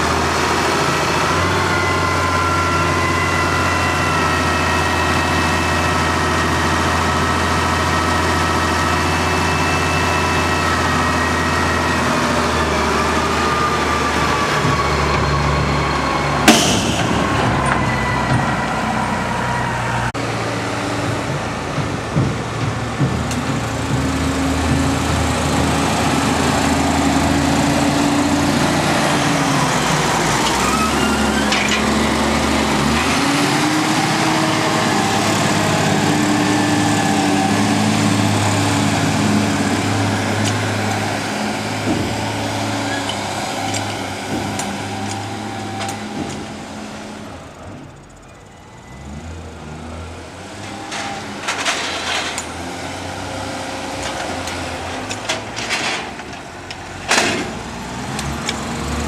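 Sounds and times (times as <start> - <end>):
tractor engines running: 0.0 - 59.0.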